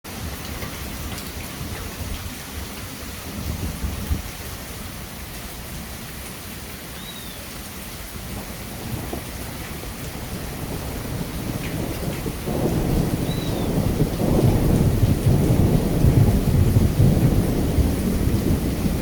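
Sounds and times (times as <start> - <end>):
heavy rain: 0.1 - 19.0
low rolling thunder: 8.2 - 19.0.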